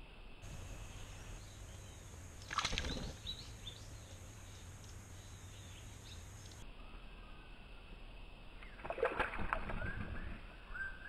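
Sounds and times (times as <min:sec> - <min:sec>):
faint steady hum: 0:00.0 - 0:11.0
small birds chirping: 0:00.4 - 0:07.7.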